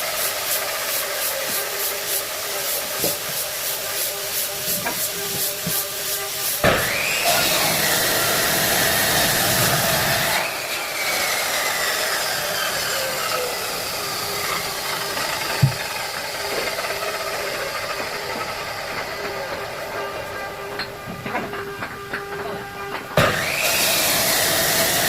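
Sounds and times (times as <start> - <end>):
power tool motor whining: 4.5 - 25.0.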